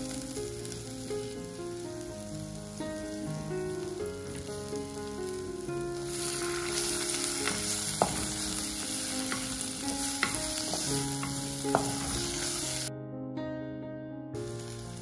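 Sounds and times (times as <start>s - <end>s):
onions sizzling in hot oil: 0.0s - 12.9s, 14.4s - 15.0s
spatula knocking against pot: 10.2s - 12.3s.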